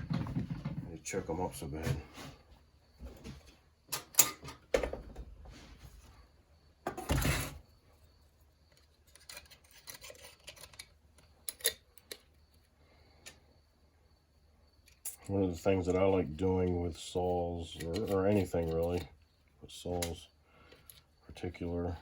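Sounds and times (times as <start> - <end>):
clicks and knocks of tools: 3.9 - 4.8, 8.7 - 12.4.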